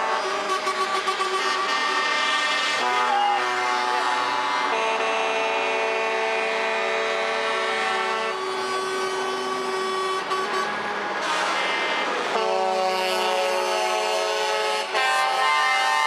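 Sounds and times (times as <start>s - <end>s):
truck air horns: 0.0s - 16.0s
truck engine: 0.0s - 16.0s.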